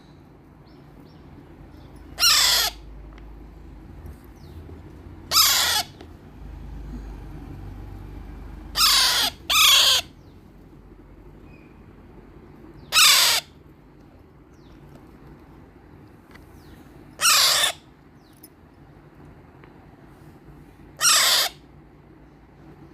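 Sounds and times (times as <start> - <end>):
parakeet chick squawking: 2.1 - 2.9, 5.3 - 6.0, 8.6 - 10.3, 12.8 - 13.6, 17.2 - 17.9, 21.0 - 21.7.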